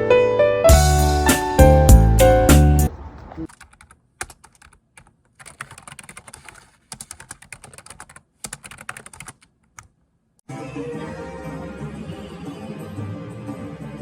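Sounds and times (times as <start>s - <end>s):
background music: 0.0s - 2.9s, 10.5s - 14.0s
typing on computer keyboard: 3.5s - 10.0s.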